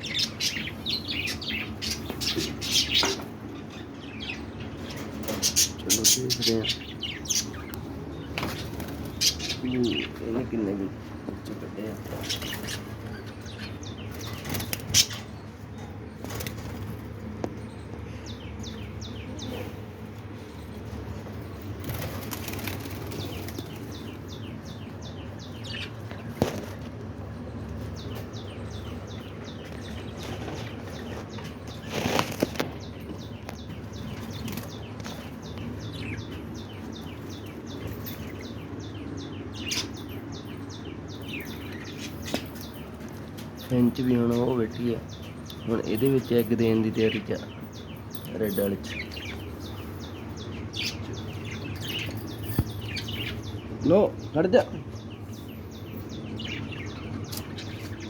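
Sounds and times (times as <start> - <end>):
small birds chirping: 0.0 - 58.0
wings fluttering: 7.2 - 9.7, 11.9 - 15.4, 16.1 - 17.3, 20.6 - 24.4, 25.7 - 27.1, 29.6 - 36.5.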